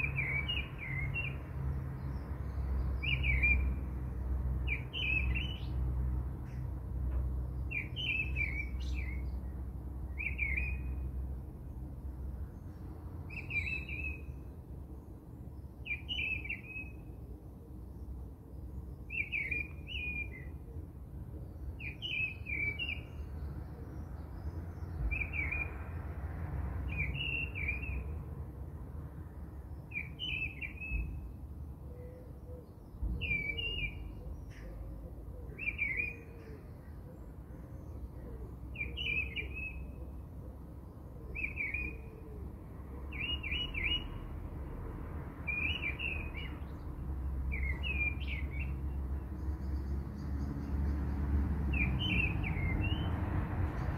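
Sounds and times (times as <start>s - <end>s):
bird chirping: 0.0s - 3.9s, 4.6s - 5.8s, 7.5s - 11.2s, 12.5s - 14.6s, 15.6s - 17.2s, 18.0s - 20.7s, 21.4s - 25.9s, 26.9s - 28.2s, 29.7s - 40.2s, 40.8s - 42.3s, 43.1s - 44.2s, 45.4s - 51.1s, 51.7s - 53.9s.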